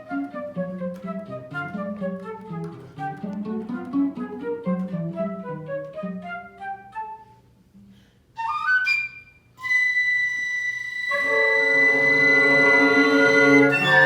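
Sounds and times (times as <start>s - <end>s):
woodwind and cello ensemble: 0.0s - 7.4s, 8.4s - 14.0s
flute long high note: 8.4s - 14.0s.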